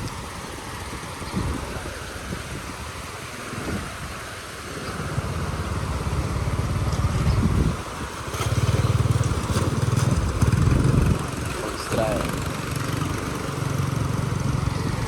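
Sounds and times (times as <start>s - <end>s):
small engine running: 4.8s - 15.0s.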